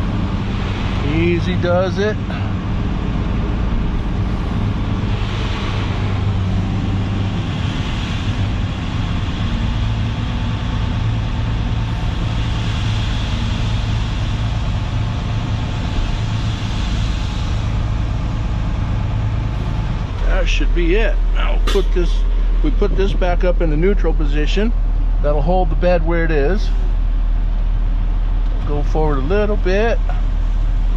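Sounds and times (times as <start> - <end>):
diesel engine running under throttle: 0.0 - 30.9
hydraulic hoist: 21.5 - 23.0.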